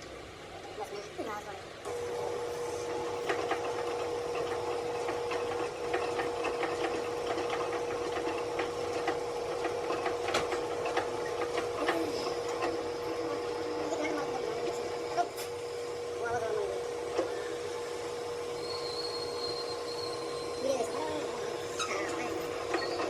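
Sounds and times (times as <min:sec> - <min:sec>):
machine humming: 0:00.0 - 0:23.0.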